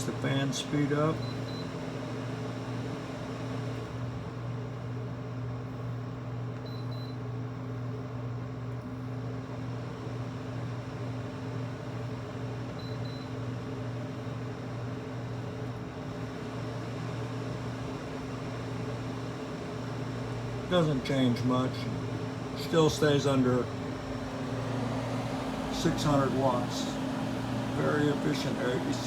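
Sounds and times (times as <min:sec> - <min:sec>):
fan air rushing: 0:00.0 - 0:04.7, 0:15.2 - 0:29.0
air conditioner humming: 0:00.0 - 0:29.0.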